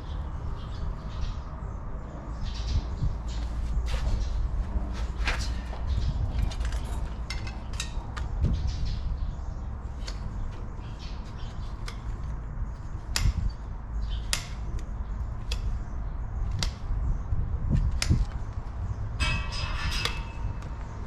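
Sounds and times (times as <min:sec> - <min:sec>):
hoof horn snapping: 0:14.3 - 0:14.9.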